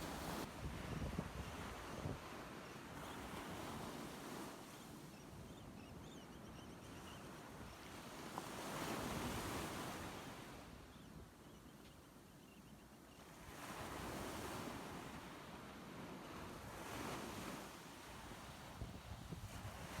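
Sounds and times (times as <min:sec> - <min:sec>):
ocean surf washing up: 0:00.0 - 0:00.5.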